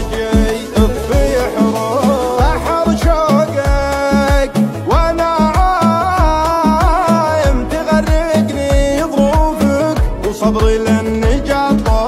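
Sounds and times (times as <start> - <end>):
sliding melodic line: 0.0 - 12.0.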